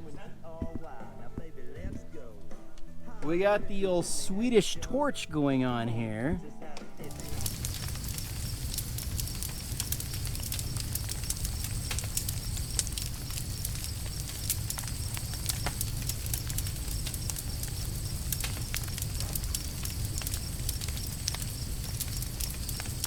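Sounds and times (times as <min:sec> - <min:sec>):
log fire crackling and popping: 0:07.0 - 0:23.0.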